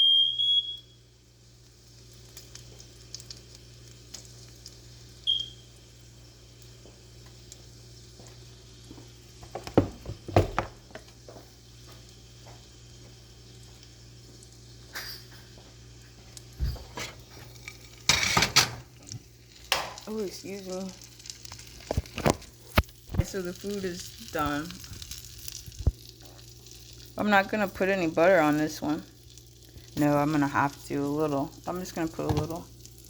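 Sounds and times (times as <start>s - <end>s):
kitchenware clattering: 14.9s - 15.6s, 16.6s - 19.0s
kitchenware clinking: 14.9s - 15.6s, 16.6s - 19.0s.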